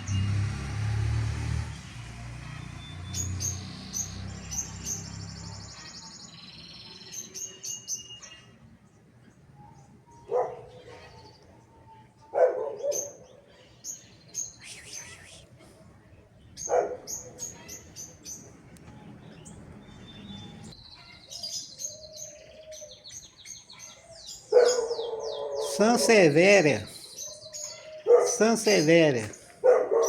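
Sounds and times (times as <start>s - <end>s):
small birds chirping: 1.7s - 30.0s.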